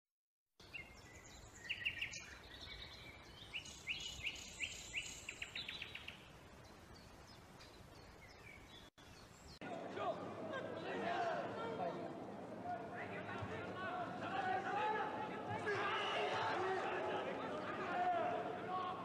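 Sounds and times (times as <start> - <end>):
birds chirping: 0.6 - 9.7.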